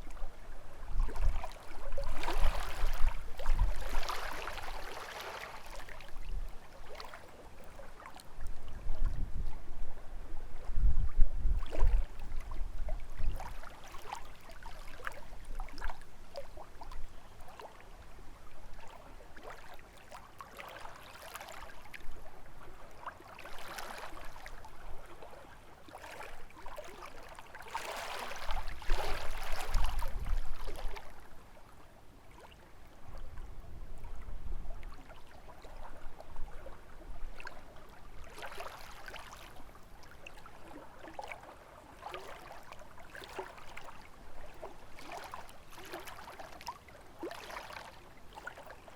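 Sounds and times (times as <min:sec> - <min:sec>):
wind rumbling on microphone: 0:00.0 - 0:04.8, 0:08.3 - 0:13.7, 0:28.4 - 0:31.3, 0:33.0 - 0:37.5
waves lapping against shore: 0:00.0 - 0:09.7, 0:11.6 - 0:31.6, 0:32.2 - 0:48.9.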